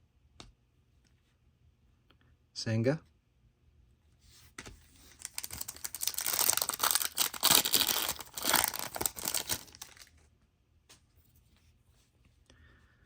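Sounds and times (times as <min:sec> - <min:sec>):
foil wrapper tearing and crinkling: 0:05.1 - 0:10.1.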